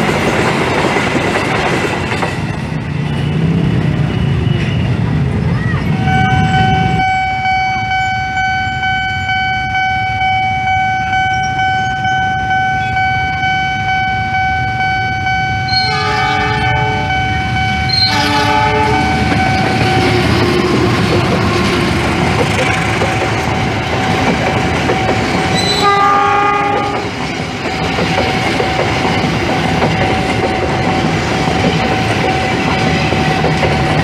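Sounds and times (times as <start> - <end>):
train passing rumble: 0.0 - 34.0
train horn blasts: 5.9 - 20.4, 25.6 - 27.1.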